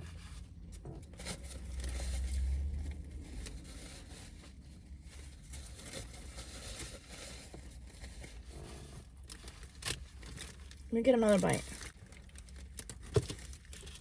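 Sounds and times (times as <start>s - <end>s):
paper wrapper crinkling: 3.2s - 14.0s.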